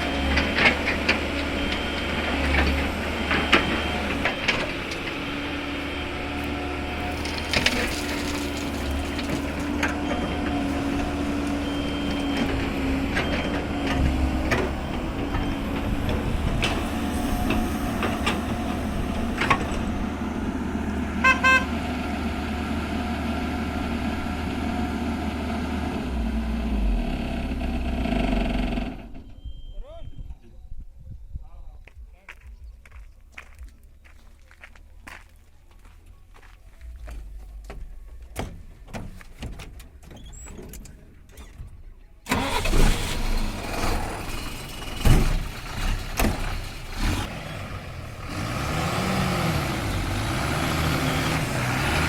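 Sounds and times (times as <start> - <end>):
excavator diesel engine running: 0.0 - 29.6, 42.2 - 52.0
knocks and clatter of stone: 7.1 - 10.0
short horn beeps: 21.2 - 21.8, 29.2 - 30.3.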